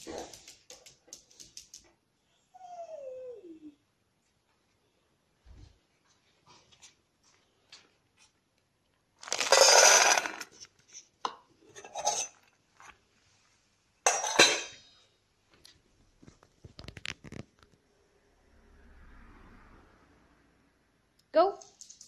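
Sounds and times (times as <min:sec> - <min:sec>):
dishes and bowl clattering: 0:09.3 - 0:10.5, 0:11.3 - 0:12.5, 0:14.1 - 0:14.9.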